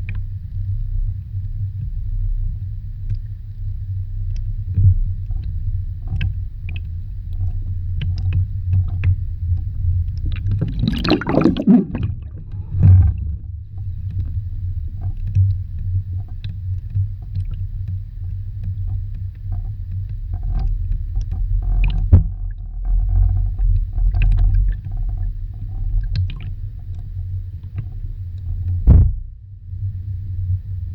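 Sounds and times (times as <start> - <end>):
underwater low rumble: 0.0 - 30.9
small clicks and crackles: 3.0 - 10.8, 12.4 - 28.9.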